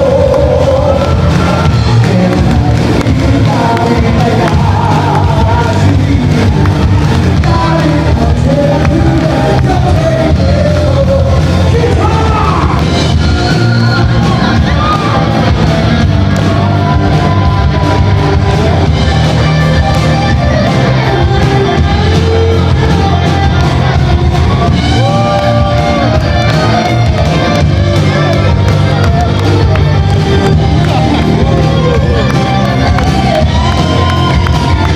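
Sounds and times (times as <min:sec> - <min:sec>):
person singing: 0:00.0 - 0:15.4
live band music: 0:00.0 - 0:34.9.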